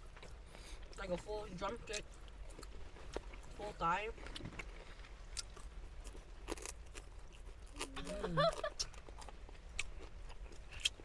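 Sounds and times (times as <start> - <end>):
small clicks and crunches: 1.9 - 8.1.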